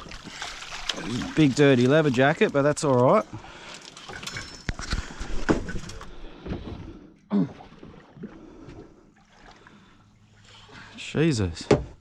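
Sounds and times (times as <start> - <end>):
water wash: 0.0 - 4.4
knocks and clatters on boat: 4.0 - 7.0, 11.6 - 12.0.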